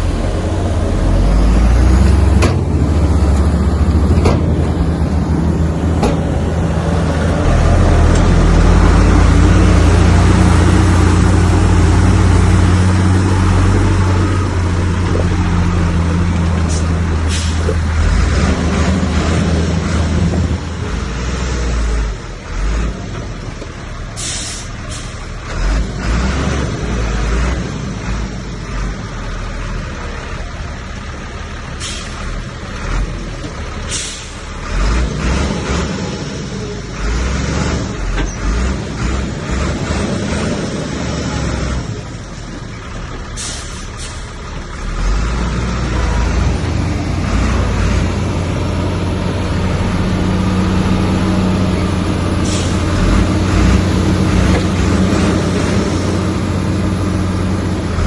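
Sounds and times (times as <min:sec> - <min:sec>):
diesel machinery engine drone: 0:00.0 - 0:58.0
air brake hisses: 0:16.7 - 0:17.7, 0:24.2 - 0:25.2, 0:31.8 - 0:32.2, 0:33.9 - 0:34.5, 0:43.4 - 0:44.4, 0:52.4 - 0:52.9.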